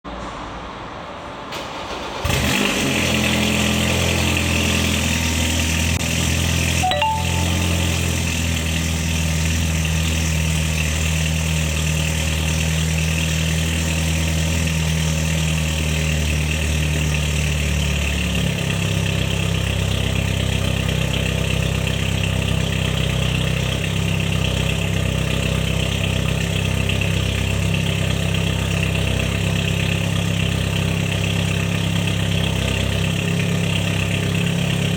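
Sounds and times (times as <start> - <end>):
car engine starting and idling: 0.2 - 34.9.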